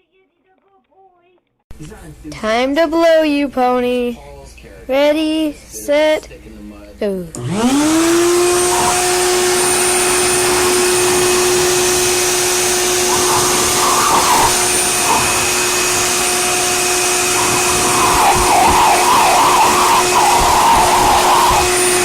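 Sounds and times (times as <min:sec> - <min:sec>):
electric blower whine: 0:07.4 - 0:22.0
rush of air: 0:09.8 - 0:22.0.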